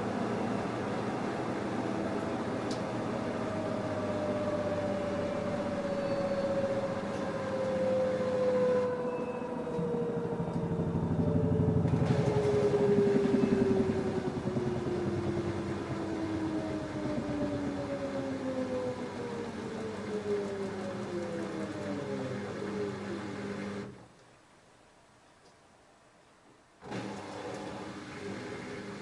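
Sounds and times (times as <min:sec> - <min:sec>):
washing machine motor whine: 0:00.0 - 0:24.0, 0:26.8 - 0:29.0
drum throbbing rumble: 0:09.8 - 0:19.7.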